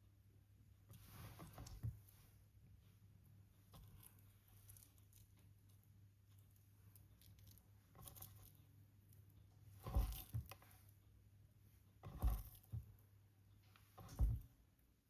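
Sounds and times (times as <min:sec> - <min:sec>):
dull thumps: 0:13.9 - 0:14.6.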